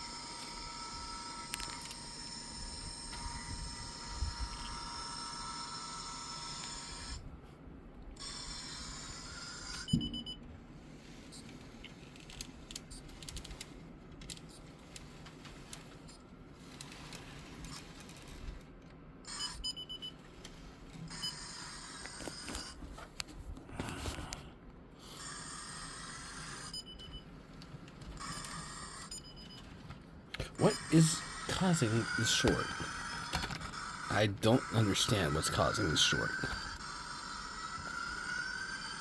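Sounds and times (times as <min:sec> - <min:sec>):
faint clicks and rattles: 0:11.4 - 0:19.0.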